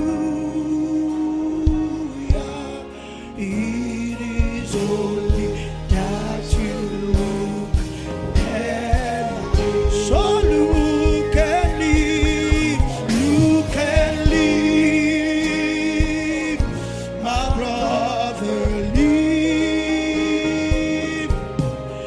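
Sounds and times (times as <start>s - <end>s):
gospel singing with vibrato: 0.0s - 22.0s
sustained chords: 0.0s - 22.0s
steady beat: 4.4s - 17.9s.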